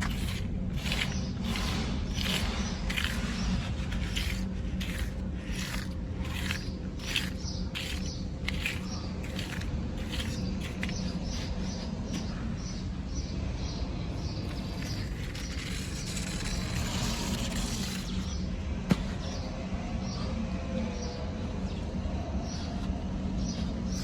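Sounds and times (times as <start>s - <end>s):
toy electric motors and gears: 0.0s - 11.8s, 14.4s - 18.4s.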